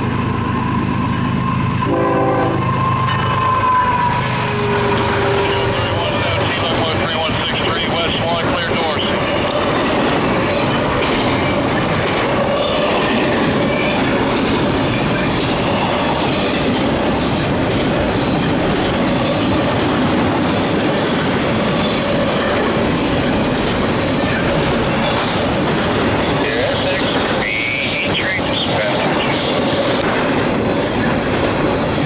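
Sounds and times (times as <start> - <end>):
train wheels rumbling on rails: 0.0 - 32.0
steady wheel squeal: 2.6 - 5.9.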